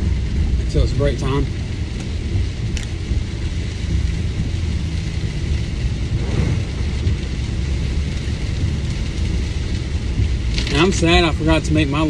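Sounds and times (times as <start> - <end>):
car road noise in rain: 0.0 - 12.0.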